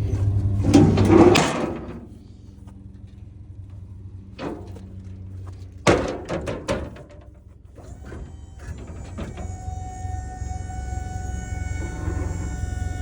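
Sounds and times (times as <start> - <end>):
metal clunks and bangs: 0.0 - 2.2, 4.3 - 9.6
truck idling hum: 0.0 - 13.0
multi-tone whine: 7.7 - 13.0.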